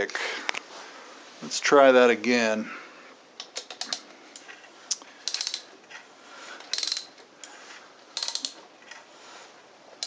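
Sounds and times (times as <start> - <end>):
ratchet wrench clicking: 5.2 - 5.7, 6.7 - 7.2, 8.2 - 8.6.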